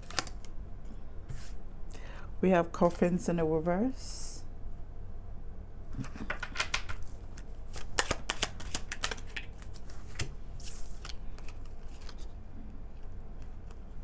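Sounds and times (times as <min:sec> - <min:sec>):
cards being shuffled: 0:00.0 - 0:00.5, 0:06.0 - 0:14.0.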